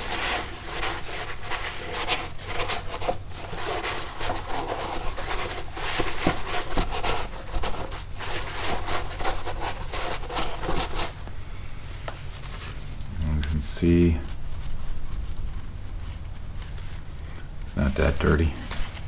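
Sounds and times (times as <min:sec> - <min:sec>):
scrubbing and scraping by hand: 0:00.0 - 0:11.2.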